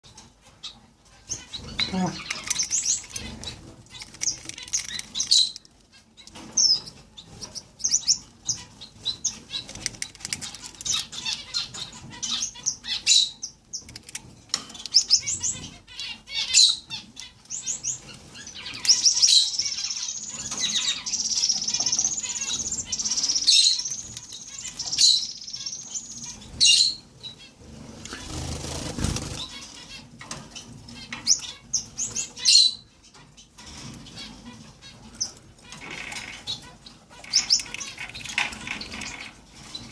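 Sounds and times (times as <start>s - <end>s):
finches chirping: 0.6s - 14.0s, 14.7s - 39.9s
wings fluttering: 1.6s - 5.7s, 27.9s - 29.7s.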